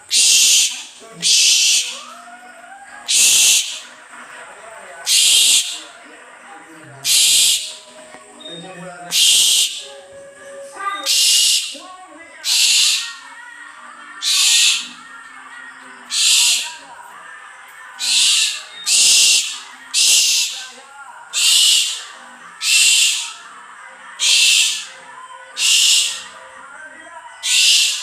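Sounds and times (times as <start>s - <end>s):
owl hissing calls: 0.0s - 2.2s, 3.0s - 3.9s, 5.0s - 5.9s, 7.0s - 7.9s, 9.1s - 10.0s, 11.0s - 13.2s, 14.2s - 15.0s, 16.1s - 16.9s, 18.0s - 23.4s, 24.2s - 26.4s, 27.4s - 28.0s.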